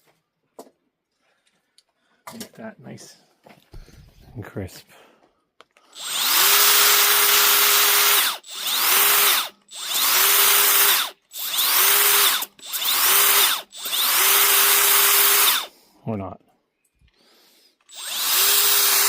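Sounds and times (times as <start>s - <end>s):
electric power sander whining: 6.0s - 15.7s, 17.9s - 19.0s.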